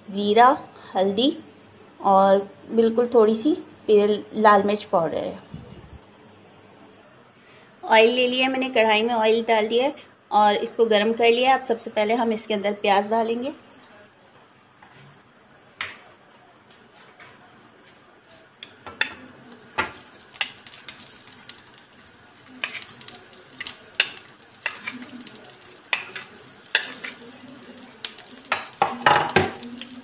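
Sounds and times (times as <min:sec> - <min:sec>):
onions sizzling in oil: 0:19.0 - 0:30.0.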